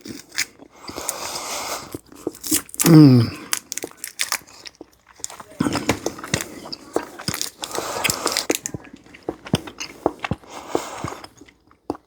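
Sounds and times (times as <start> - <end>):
wet mouth sounds: 0.0 - 4.5
candy crunching between teeth: 0.0 - 10.4.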